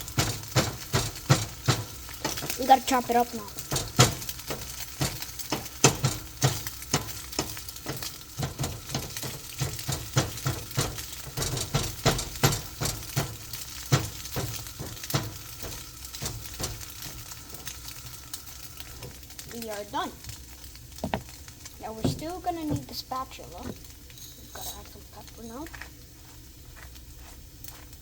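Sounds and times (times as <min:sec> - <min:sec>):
utensil knocking against pan: 0:00.0 - 0:02.6, 0:03.6 - 0:17.7, 0:21.0 - 0:23.8
eggs sizzling in oil: 0:00.0 - 0:28.0.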